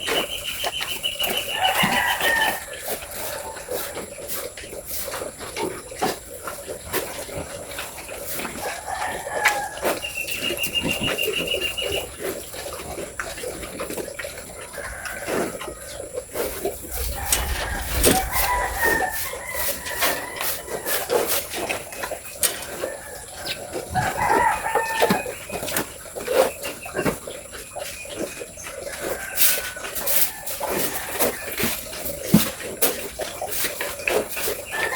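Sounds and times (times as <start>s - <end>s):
rooster crowing: 1.5s - 2.8s, 16.8s - 21.0s, 24.0s - 25.2s.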